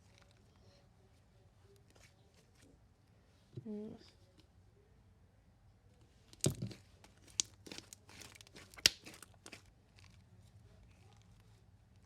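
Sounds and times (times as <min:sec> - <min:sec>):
slime popping and crackling: 0:06.4 - 0:10.1.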